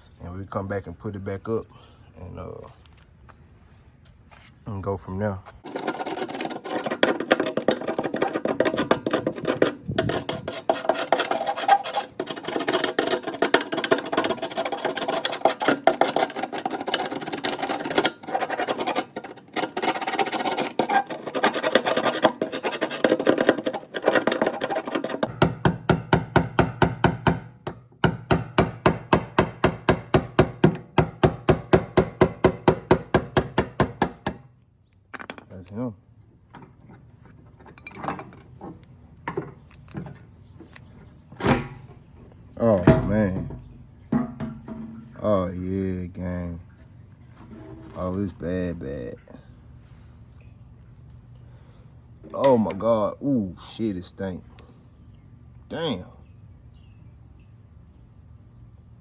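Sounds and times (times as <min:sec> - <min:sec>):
hand tools scraping metal: 0:05.6 - 0:34.4, 0:42.6 - 0:45.2, 0:47.4 - 0:48.4
sharp tool strokes on metal: 0:05.7 - 0:25.4.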